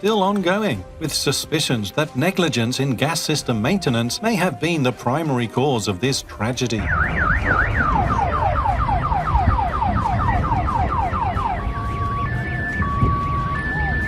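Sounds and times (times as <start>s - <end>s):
emergency vehicle siren: 6.8s - 14.0s
low rumble: 6.8s - 14.0s.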